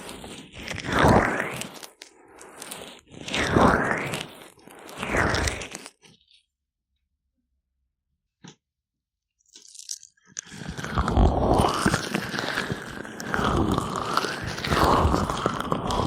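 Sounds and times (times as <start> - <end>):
gloved fingers rubbing microphone: 0.0 - 6.3.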